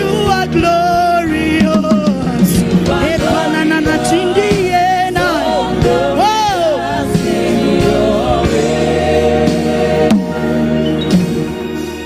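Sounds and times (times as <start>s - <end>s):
gospel worship music with singing: 0.0s - 12.0s.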